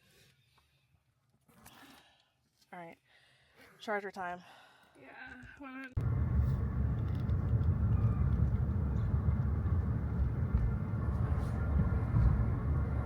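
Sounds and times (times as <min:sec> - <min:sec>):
road and tyre rumble: 0:06.0 - 0:13.0.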